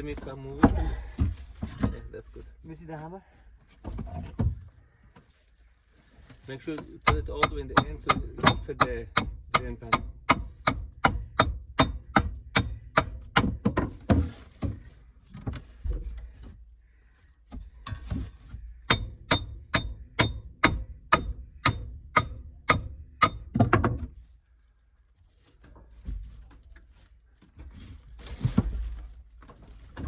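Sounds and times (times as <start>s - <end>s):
hand hammer striking: 18.9s - 23.5s.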